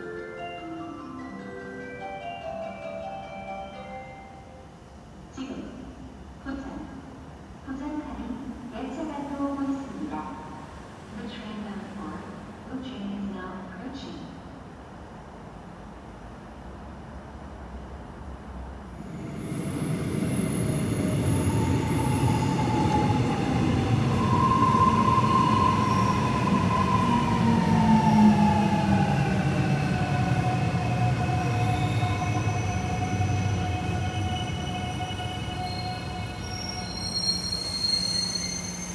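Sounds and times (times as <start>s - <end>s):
electric train pulling in: 0.0s - 6.4s, 14.8s - 38.9s.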